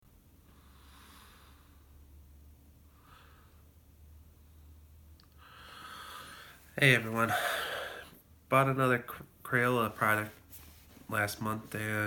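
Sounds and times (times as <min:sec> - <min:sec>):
faint low hum: 0:00.1 - 0:12.0
soft breaths: 0:00.4 - 0:08.3.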